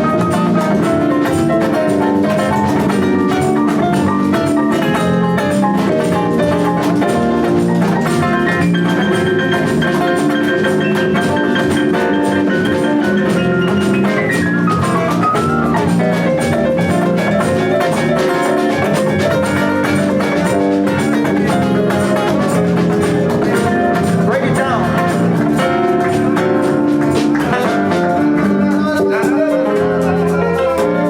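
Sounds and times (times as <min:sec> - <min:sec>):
drums keeping a beat: 0:00.0 - 0:31.0
live band playing: 0:00.0 - 0:31.0.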